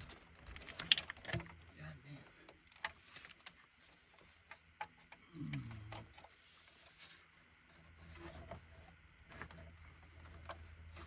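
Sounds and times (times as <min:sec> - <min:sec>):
person grunting: 0:05.2 - 0:06.0.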